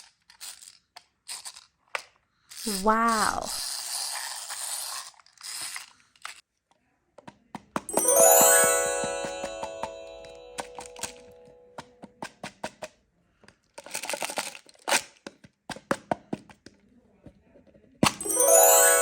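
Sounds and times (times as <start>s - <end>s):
chime sound effect: 7.9s - 11.8s, 18.2s - 19.0s.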